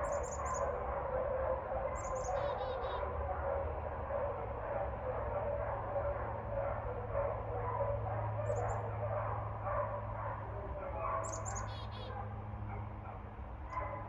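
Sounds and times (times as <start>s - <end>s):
bird chirps: 0.0s - 0.7s, 2.0s - 3.0s, 11.2s - 12.1s
dogs barking: 0.0s - 14.0s.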